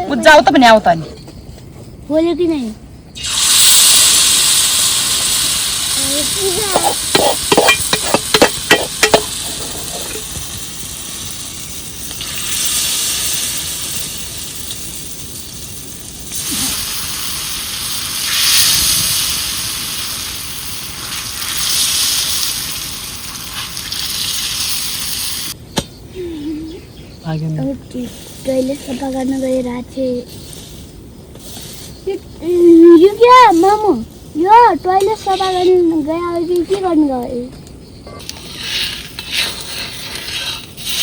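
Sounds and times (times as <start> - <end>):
food sizzling in a pan: 3.2 - 25.6
sharp clanks: 6.7 - 10.9.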